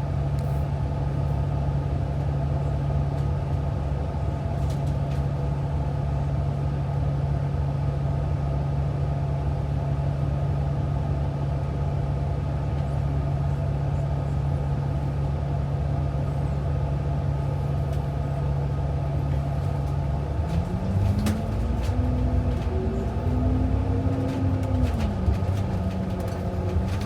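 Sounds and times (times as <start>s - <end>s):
bus engine revving: 19.5s - 27.0s.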